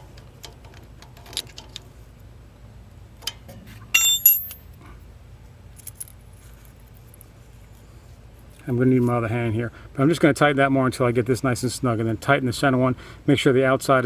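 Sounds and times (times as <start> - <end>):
sharp ringing metal clinks: 3.9 - 4.7.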